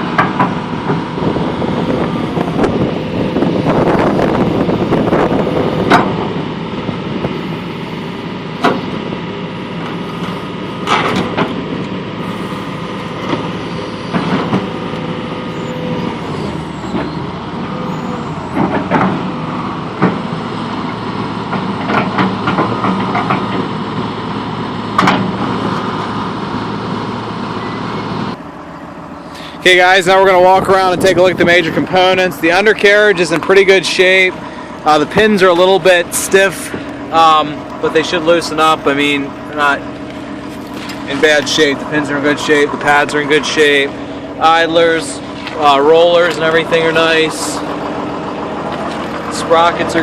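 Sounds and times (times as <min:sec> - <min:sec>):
excavator diesel engine running: 0:00.0 - 0:50.0
held tone shifting in pitch: 0:01.5 - 0:05.9, 0:12.2 - 0:18.6, 0:27.6 - 0:29.4.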